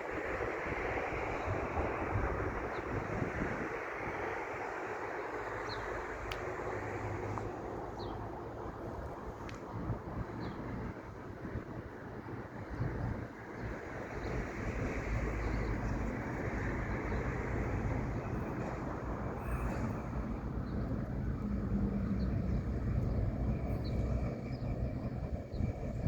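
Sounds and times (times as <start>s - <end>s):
diesel engine droning: 13.8s - 26.0s.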